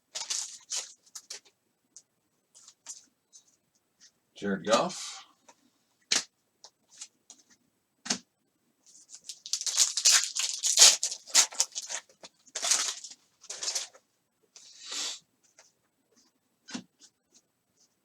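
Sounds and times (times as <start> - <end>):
cards and packaging rustling: 0.1 - 1.5, 8.9 - 14.0.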